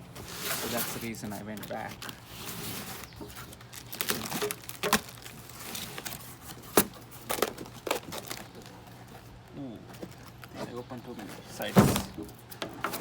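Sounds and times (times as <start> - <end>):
cardboard box being torn open: 0.2 - 8.7.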